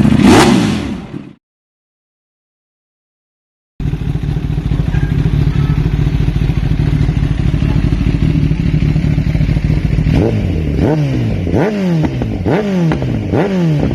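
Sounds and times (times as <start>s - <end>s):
motorcycle engine running: 3.8s - 13.9s.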